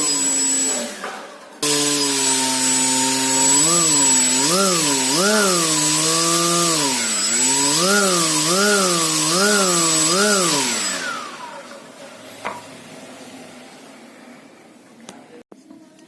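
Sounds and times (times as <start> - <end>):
table fan running: 1.6 - 11.7.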